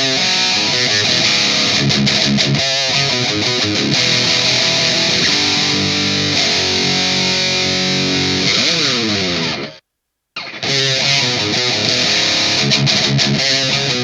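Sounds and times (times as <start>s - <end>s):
distorted electric guitar riff: 0.0s - 9.8s, 10.4s - 14.0s.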